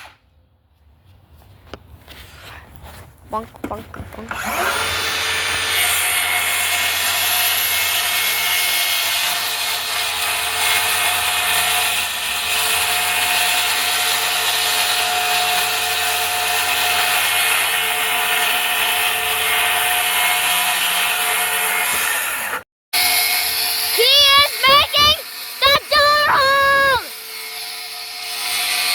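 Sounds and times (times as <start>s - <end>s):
power saw cutting plywood: 4.1s - 28.9s.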